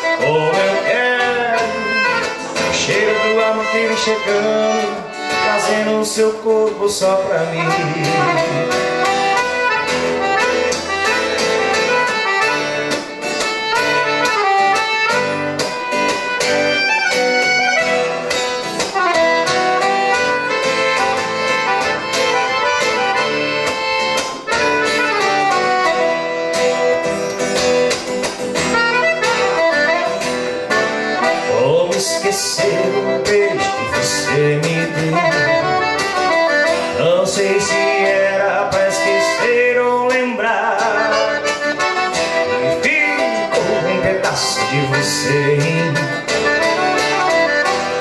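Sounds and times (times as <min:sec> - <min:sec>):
accordion melody: 0:00.0 - 0:48.0
guitar: 0:00.0 - 0:48.0
steady beat: 0:07.5 - 0:31.5.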